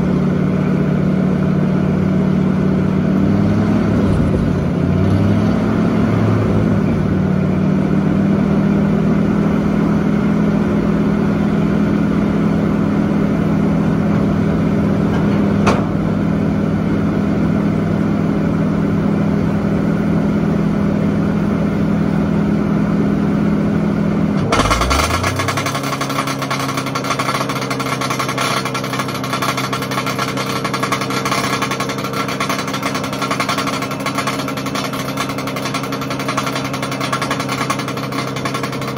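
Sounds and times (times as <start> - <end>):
wood chipper engine running: 0.0 - 38.9
fast metallic rattle: 24.4 - 38.9.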